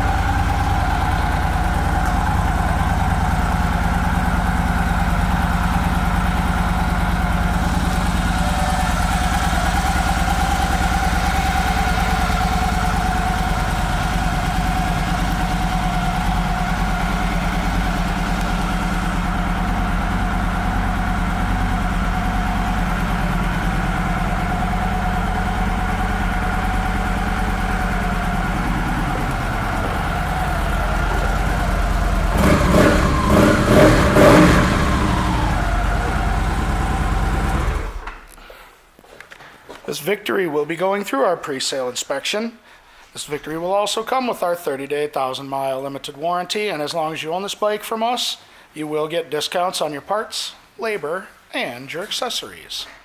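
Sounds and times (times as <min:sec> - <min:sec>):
motorcycle engine idling and revving: 0:00.0 - 0:38.3.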